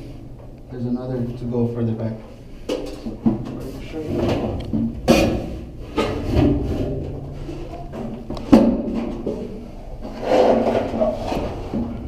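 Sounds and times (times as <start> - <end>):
low steady hum: 0.0 - 12.0
knocks and rubbing in metal tank: 3.2 - 12.0.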